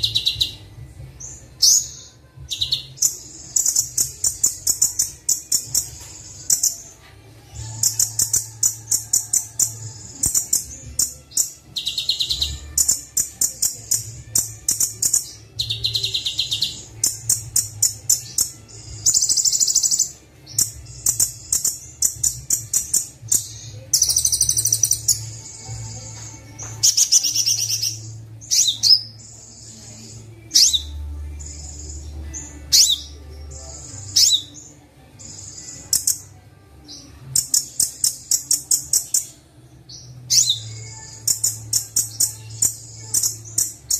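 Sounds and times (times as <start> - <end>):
bird song trills: 0.0 - 43.9.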